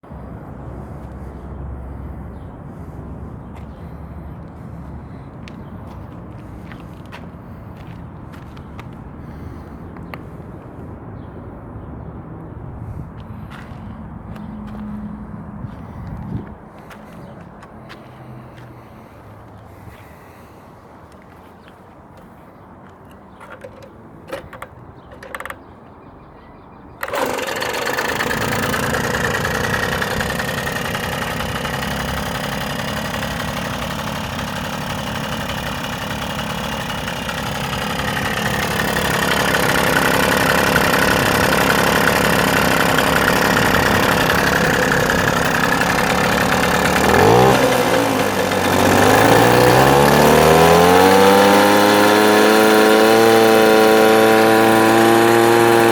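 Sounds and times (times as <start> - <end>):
moped engine running: 13.4 - 21.7, 23.4 - 25.9, 27.0 - 55.9.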